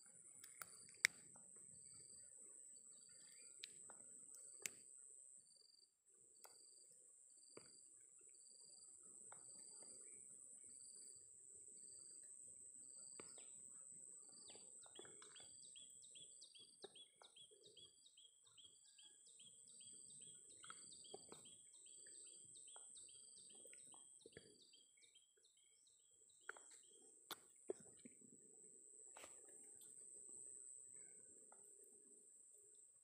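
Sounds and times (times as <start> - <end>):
faint bird chirping: 1.7 - 4.8, 8.3 - 28.2.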